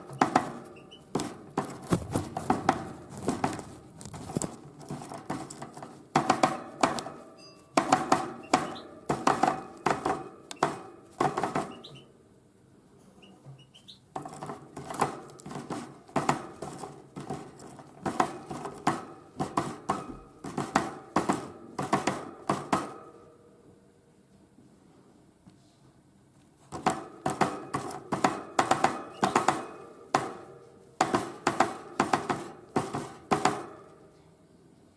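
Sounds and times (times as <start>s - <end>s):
bird pecking seeds: 0.0s - 7.2s, 13.6s - 18.8s.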